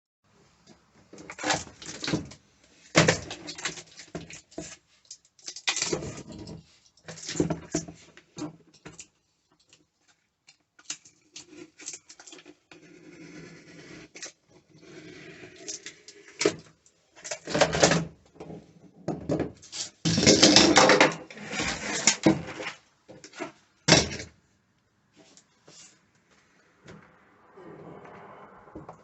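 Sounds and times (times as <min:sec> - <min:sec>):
objects knocking and clattering: 0:17.3 - 0:24.3.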